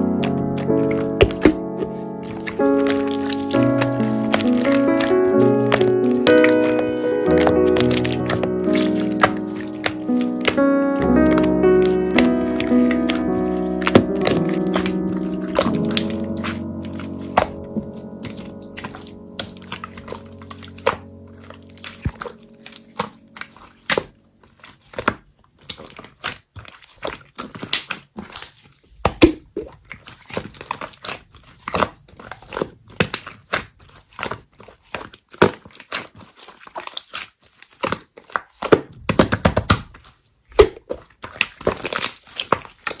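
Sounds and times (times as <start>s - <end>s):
slime squishing with clicks and pops: 0.2s - 13.2s, 25.0s - 34.5s.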